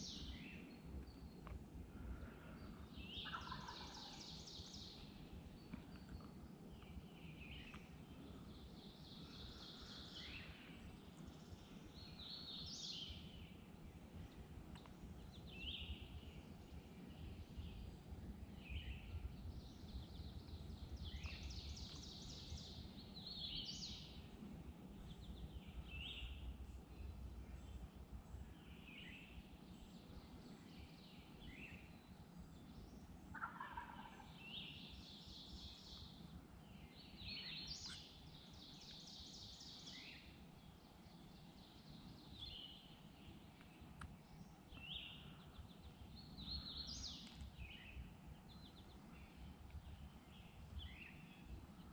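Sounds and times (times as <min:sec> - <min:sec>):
songbirds singing: 0:00.0 - 0:51.9
distant turkey gobbling: 0:03.2 - 0:04.2, 0:33.3 - 0:34.2.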